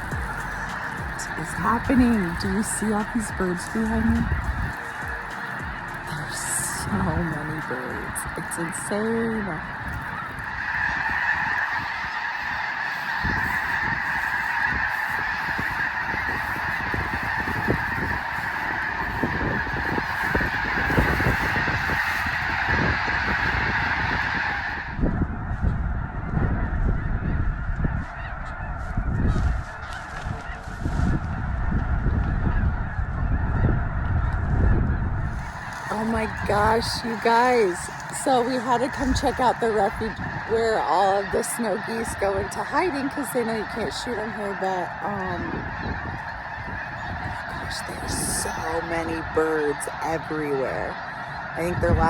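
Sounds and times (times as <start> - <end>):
geese honking: 0.0 - 52.0
low irregular rumbling: 31.0 - 52.0.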